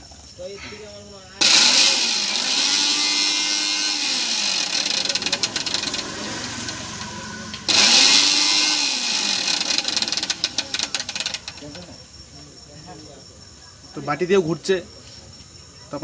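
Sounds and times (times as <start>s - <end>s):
mixer grinder motor running: 1.4s - 11.8s.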